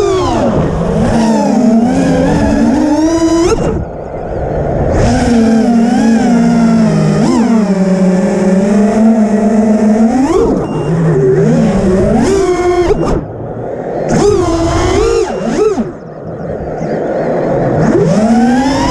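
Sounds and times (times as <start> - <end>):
quadcopter motors whining: 0.0 - 18.9.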